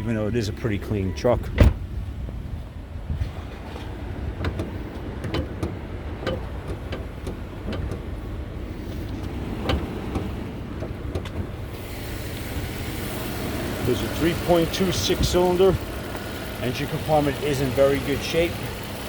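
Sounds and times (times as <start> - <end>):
car engine idling: 0.0 - 19.0
light clicks and knocks: 3.5 - 11.6.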